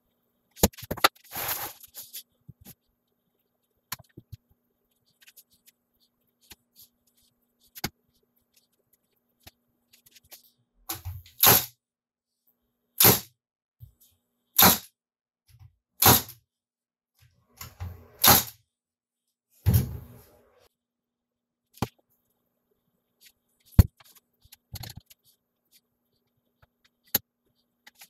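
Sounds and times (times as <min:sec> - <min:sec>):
stapler shots into plywood: 0:11.4 - 0:11.7, 0:13.0 - 0:13.3, 0:14.6 - 0:14.9, 0:16.0 - 0:16.4, 0:18.2 - 0:18.6.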